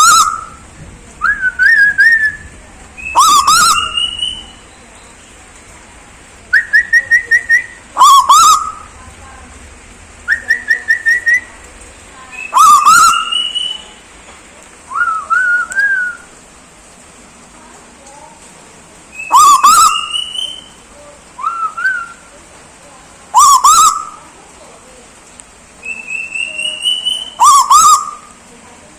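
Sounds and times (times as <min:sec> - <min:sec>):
bird trills and whistles: 0:00.0 - 0:00.6, 0:01.2 - 0:05.2, 0:06.5 - 0:08.9, 0:10.3 - 0:11.5, 0:12.3 - 0:13.9, 0:19.1 - 0:20.8, 0:21.4 - 0:22.3, 0:23.4 - 0:24.2, 0:25.8 - 0:28.3.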